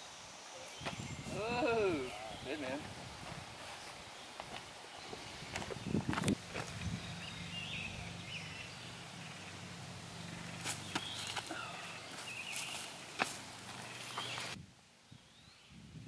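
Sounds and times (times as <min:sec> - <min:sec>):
small birds chirping: 0:00.0 - 0:15.9
steady low hum: 0:05.3 - 0:14.6.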